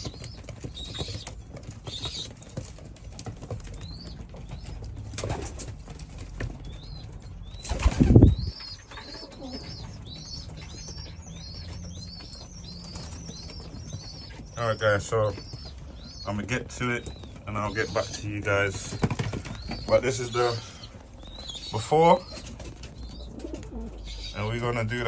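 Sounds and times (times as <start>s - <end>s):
high peeping calls: 0.0s - 25.0s
pigeon wings flapping: 7.6s - 9.6s.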